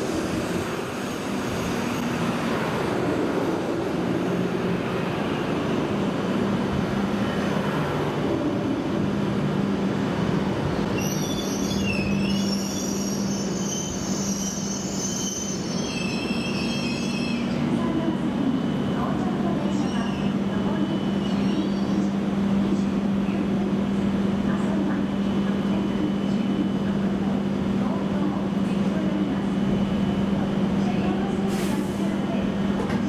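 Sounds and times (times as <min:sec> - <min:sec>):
train electric hum: 0:00.0 - 0:33.0
brake and wheel squeal: 0:11.0 - 0:17.5.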